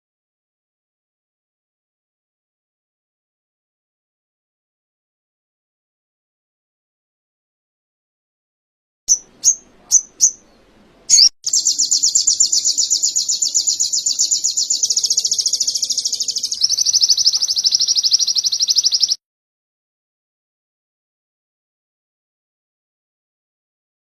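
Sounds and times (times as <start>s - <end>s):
bird chirps: 9.1s - 19.2s
fast high bird trill: 11.1s - 19.2s.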